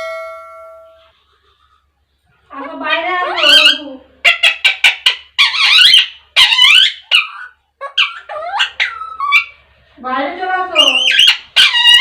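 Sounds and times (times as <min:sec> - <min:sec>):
parakeet squawking and chattering: 0:02.5 - 0:09.6, 0:10.7 - 0:12.0.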